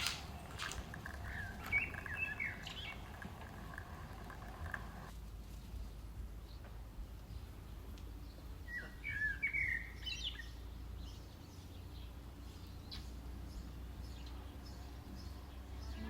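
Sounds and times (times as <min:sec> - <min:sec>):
steady low rumble: 0:00.0 - 0:05.2
small bird chirping: 0:00.0 - 0:06.6.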